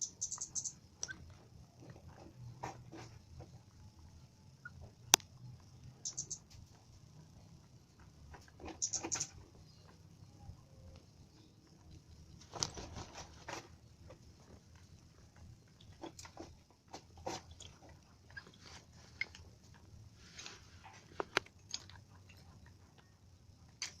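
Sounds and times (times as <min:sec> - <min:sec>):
chickens pecking at feed: 0:10.9 - 0:24.0.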